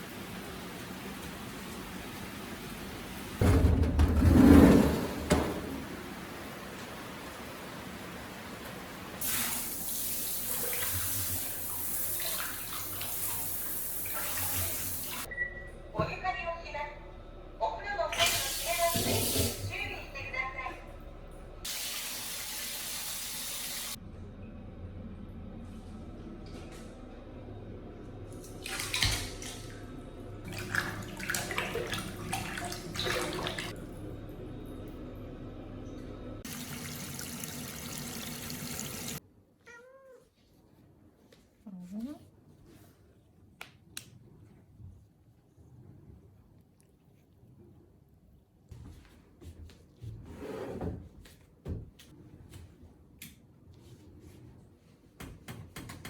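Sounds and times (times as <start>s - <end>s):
water running from a tap: 9.2s - 15.3s, 18.1s - 19.7s, 21.7s - 24.0s, 30.4s - 33.8s, 36.4s - 39.2s.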